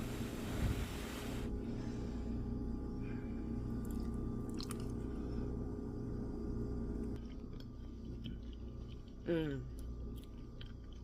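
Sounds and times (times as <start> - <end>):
steady low hum: 0.0 - 11.0
person chewing food: 3.6 - 5.2, 7.0 - 11.0.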